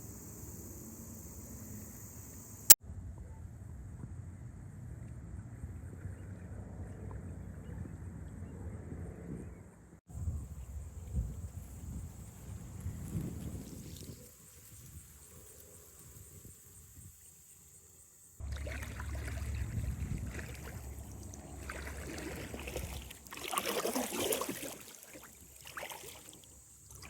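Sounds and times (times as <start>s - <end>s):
kayak paddle splashing in water: 18.4s - 27.0s.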